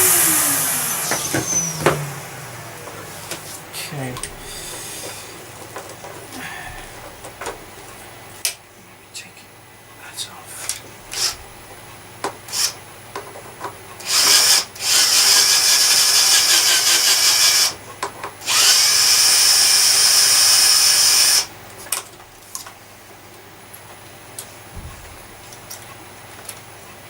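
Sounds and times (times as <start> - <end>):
small power tool whirring: 0.0 - 5.4, 11.1 - 11.4, 12.5 - 12.8, 14.0 - 17.8, 18.4 - 21.5.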